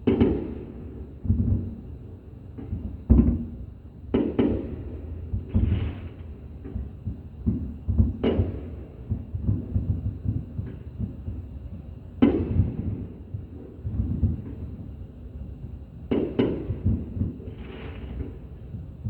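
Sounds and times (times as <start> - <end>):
sharp firework bangs: 0.0 - 1.7
fireworks booming: 0.0 - 15.0, 15.6 - 19.0.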